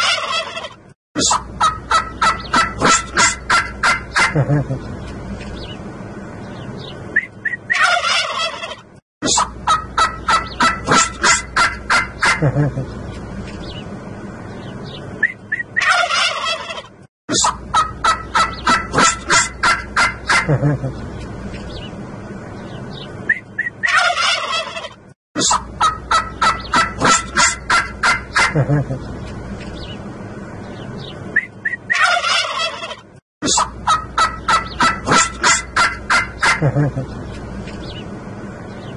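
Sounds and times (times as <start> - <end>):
turkeys gobbling: 0.0 - 4.9, 7.4 - 12.9, 15.2 - 21.0, 23.3 - 29.1, 31.4 - 37.4.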